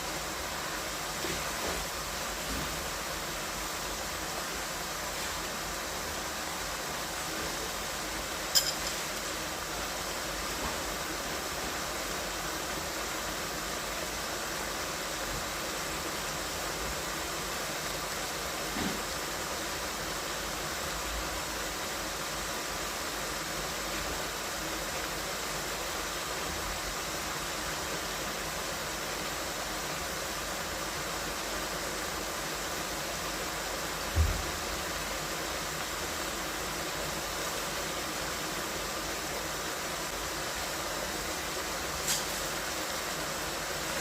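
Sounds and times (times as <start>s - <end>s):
steady hiss: 0.0s - 44.0s
low thump: 34.2s - 34.5s.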